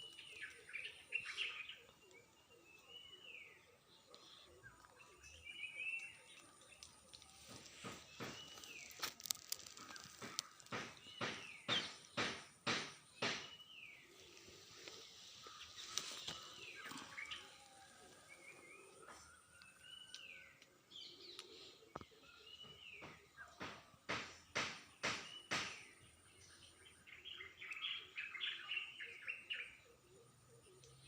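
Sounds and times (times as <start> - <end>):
small birds chirping: 0.0 - 31.0
sharp clicks and rustles: 6.3 - 13.4.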